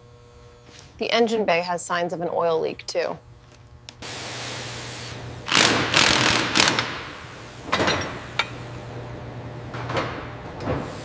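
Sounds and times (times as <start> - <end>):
steady low hum: 0.0 - 11.0
loud mechanical clatter: 5.5 - 7.1.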